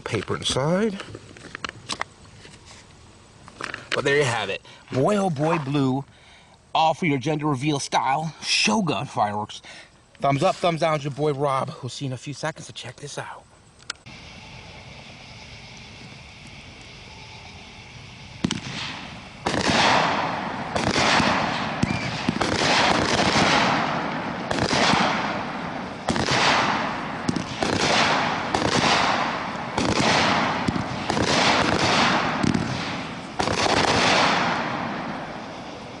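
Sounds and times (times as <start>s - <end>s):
crackling strobe bursts: 0.0s - 36.0s
firework launch reports: 14.1s - 36.0s.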